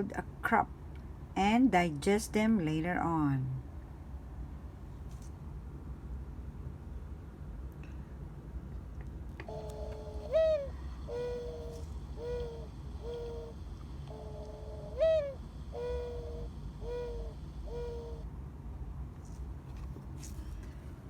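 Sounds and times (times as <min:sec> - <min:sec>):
dove cooing: 0:09.4 - 0:18.3.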